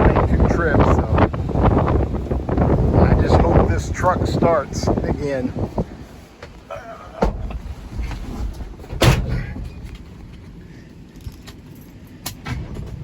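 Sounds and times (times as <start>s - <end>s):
low rumble: 0.0s - 6.2s
truck door slamming: 7.1s - 10.2s.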